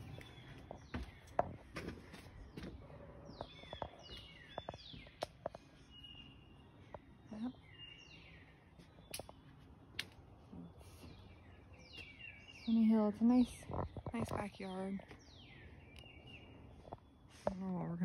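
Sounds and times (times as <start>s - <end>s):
songbirds singing faintly: 0.0s - 18.0s.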